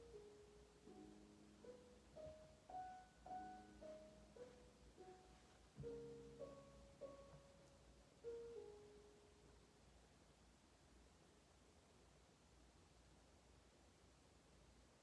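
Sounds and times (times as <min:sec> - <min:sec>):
slow piano music: 0:00.0 - 0:09.9.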